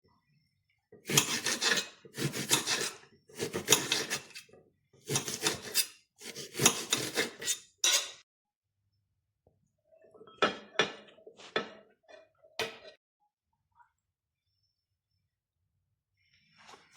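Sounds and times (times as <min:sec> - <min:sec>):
rasping scraping strokes: 0:01.1 - 0:04.5, 0:05.1 - 0:08.2.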